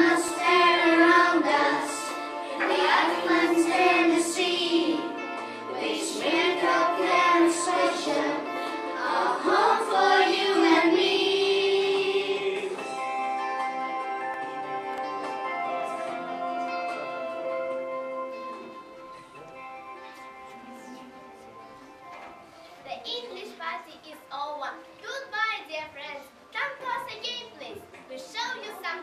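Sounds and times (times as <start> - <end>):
children singing: 0.0 - 12.9
musical backing: 0.0 - 29.0.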